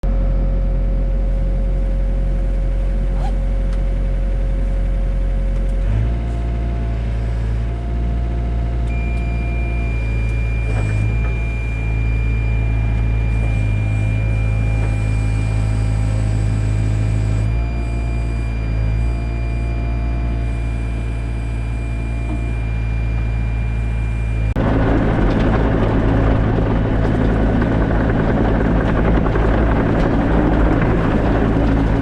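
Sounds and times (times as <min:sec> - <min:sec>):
excavator diesel engine running: 0:00.1 - 0:32.0.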